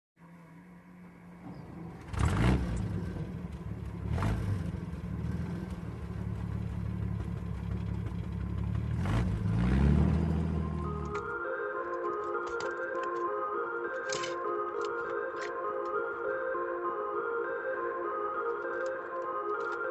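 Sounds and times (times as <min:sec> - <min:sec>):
large vehicle engine running: 0:00.2 - 0:11.4.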